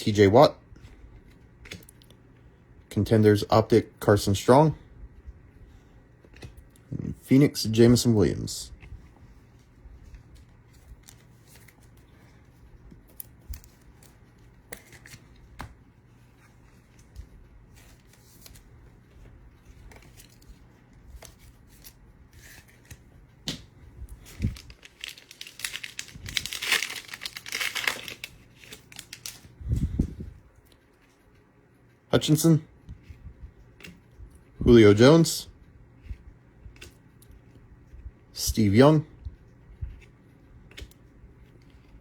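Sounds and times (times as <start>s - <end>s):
foil wrapper crinkling and tearing: 24.2s - 29.5s.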